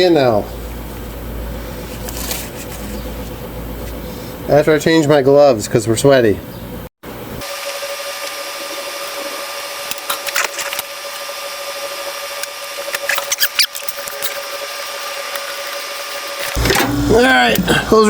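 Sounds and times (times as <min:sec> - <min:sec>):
steady tonal hum: 0:06.8 - 0:18.0
hand tools clicking and rattling: 0:12.9 - 0:17.7.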